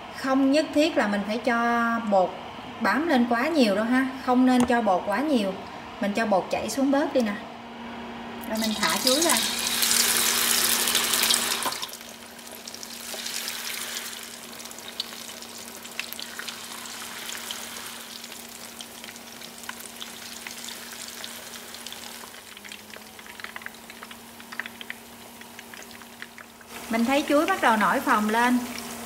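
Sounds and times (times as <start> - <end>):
battered food deep-frying in oil: 8.4 - 29.0
crackles and pops in oil: 22.2 - 26.8.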